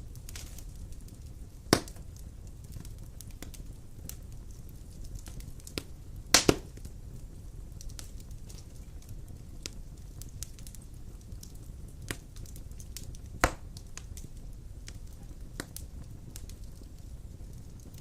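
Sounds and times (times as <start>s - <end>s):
low rumble of flames: 0.0s - 18.0s
logs crackling: 0.1s - 7.0s, 7.7s - 18.0s
loud sharp pop of fire: 1.7s - 2.2s, 5.2s - 6.9s, 12.1s - 14.3s.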